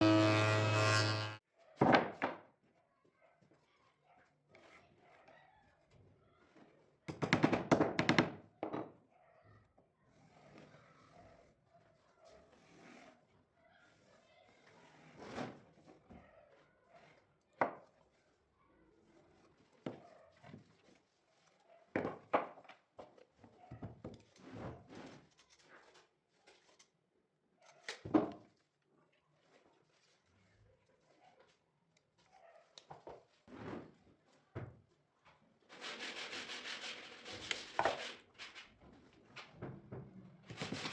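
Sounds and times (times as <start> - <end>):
objects knocking and scraping: 37.4 - 40.9.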